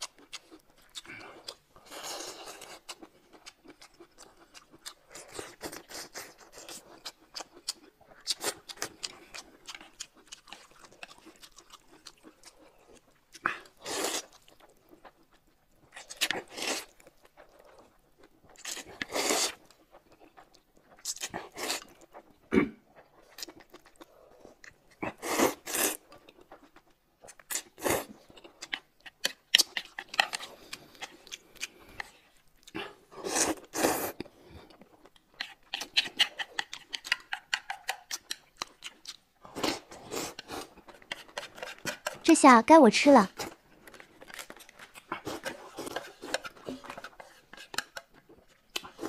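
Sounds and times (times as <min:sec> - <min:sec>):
person chewing and crunching food: 0:00.0 - 0:42.4, 0:43.2 - 0:49.0.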